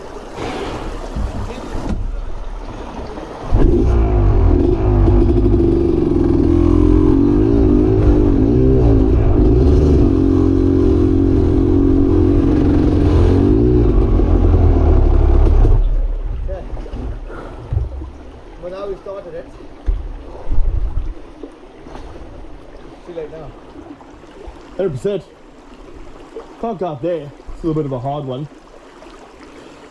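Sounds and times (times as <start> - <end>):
dirt bike engine revving: 3.5 - 16.2.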